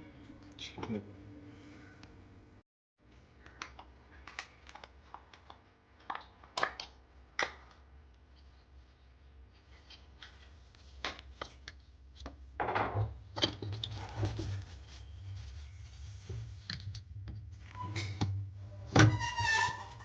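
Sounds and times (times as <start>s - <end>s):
low steady hum: 0.0s - 2.6s.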